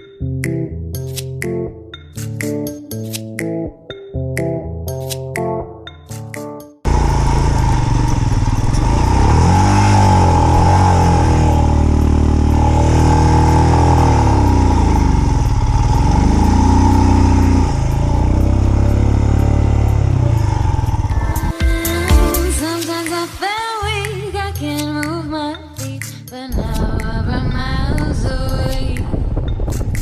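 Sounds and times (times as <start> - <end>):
motorcycle engine revving: 6.9 - 22.6.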